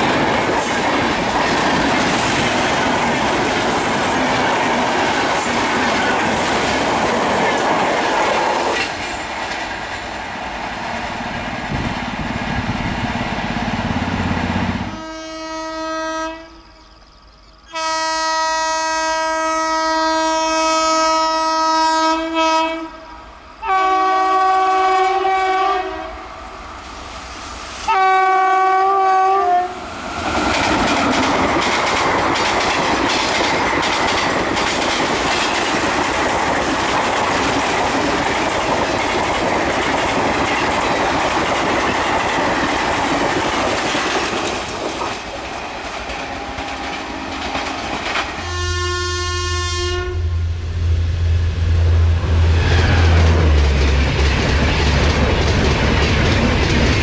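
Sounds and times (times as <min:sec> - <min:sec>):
train wheels clattering over rail joints: 0:00.0 - 0:09.7, 0:30.2 - 0:48.4, 0:53.6 - 0:57.0
train horn blasts: 0:14.8 - 0:16.7, 0:17.7 - 0:26.3, 0:27.9 - 0:29.8, 0:48.3 - 0:50.7.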